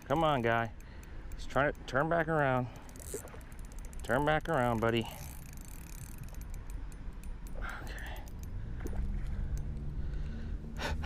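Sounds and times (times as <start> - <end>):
fishing reel clicking: 0.0 - 8.6
low rumble: 6.6 - 11.0.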